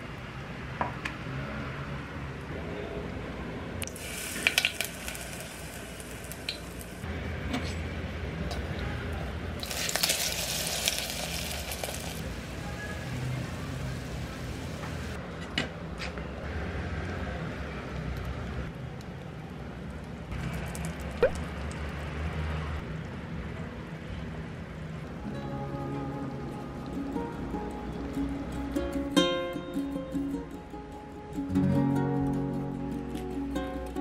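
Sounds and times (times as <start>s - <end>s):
batter sizzling in oil: 3.9s - 7.1s, 9.6s - 15.2s.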